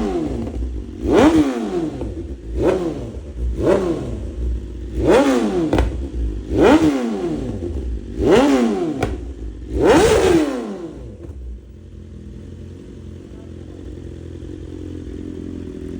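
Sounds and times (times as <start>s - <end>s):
motorcycle engine revving: 0.0s - 15.9s
exhaust pops: 4.4s - 6.6s, 7.4s - 10.4s.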